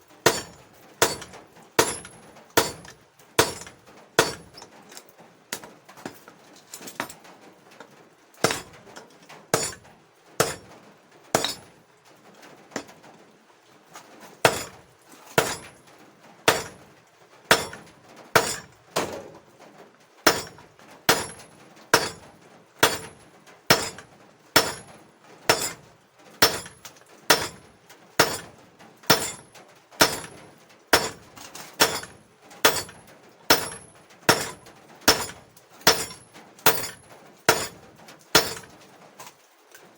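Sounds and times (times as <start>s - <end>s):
hammer striking steel on anvil: 0.3s - 4.6s, 8.4s - 8.7s, 9.6s - 9.8s, 11.4s - 11.6s, 15.4s - 15.7s, 16.5s - 16.8s, 17.5s - 17.8s, 18.4s - 18.7s, 20.3s - 21.4s, 22.0s - 22.2s, 22.8s - 24.0s, 24.6s - 24.9s, 25.5s - 25.8s, 26.4s - 27.6s, 28.2s - 28.5s, 29.1s - 29.4s, 30.0s - 30.4s, 31.0s - 31.2s, 31.8s - 32.1s, 32.7s - 37.8s, 38.4s - 38.7s.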